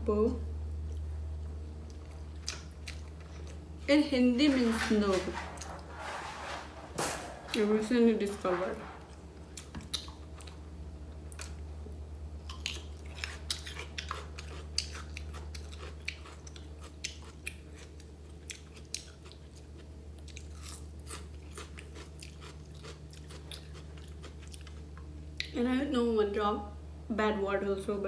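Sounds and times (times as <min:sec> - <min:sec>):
person chewing food: 0:01.9 - 0:03.7, 0:12.5 - 0:25.5.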